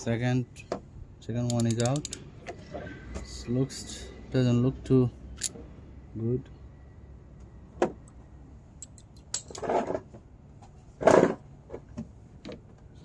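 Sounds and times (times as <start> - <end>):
metal tools clinking: 5.4 - 5.6, 8.8 - 9.8.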